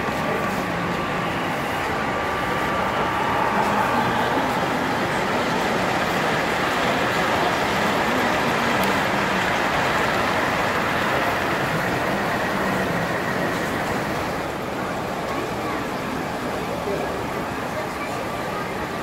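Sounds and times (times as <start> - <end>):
din of a busy hall: 0.0 - 19.0
model trains running: 0.0 - 19.0.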